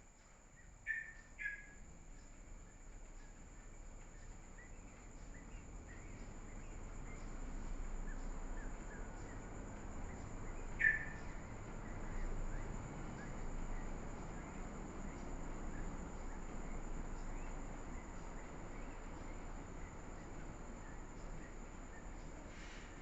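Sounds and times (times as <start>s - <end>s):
low steady hum: 0.0s - 23.0s
high bird chirps: 0.8s - 1.8s, 10.5s - 12.0s.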